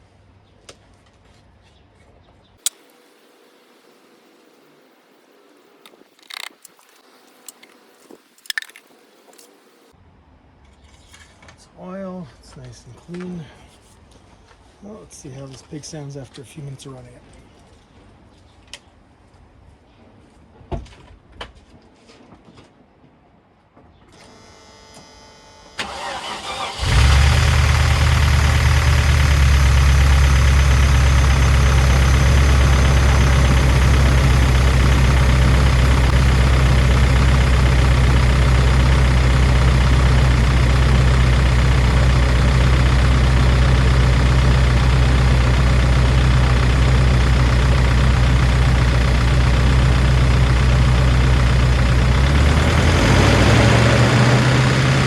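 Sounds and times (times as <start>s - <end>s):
car engine starting and idling: 2.6s - 9.9s, 25.8s - 55.0s.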